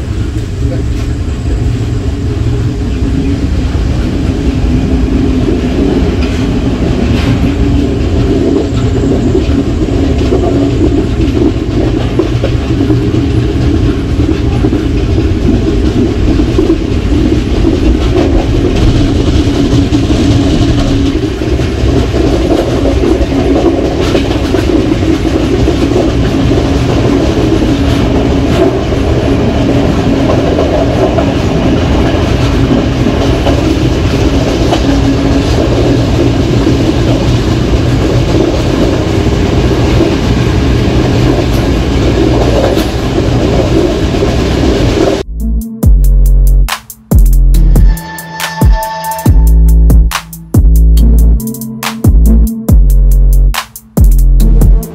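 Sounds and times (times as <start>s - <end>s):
train wheels rumbling on track: 0.0s - 54.9s
wheels clicking over rail joints: 5.9s - 44.4s.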